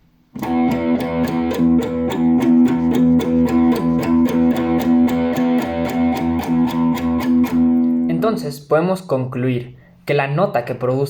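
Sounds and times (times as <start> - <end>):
guitar fast picking: 0.4 - 8.4.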